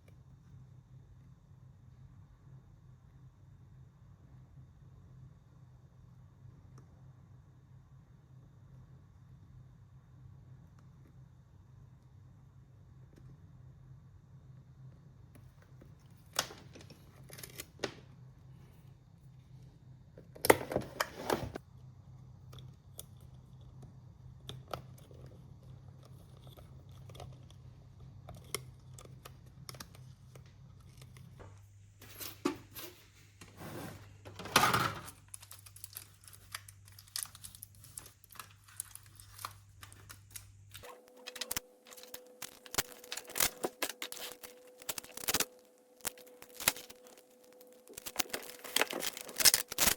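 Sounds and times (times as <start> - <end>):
small clicks and handling noises: 22.4 - 31.6, 35.1 - 49.9.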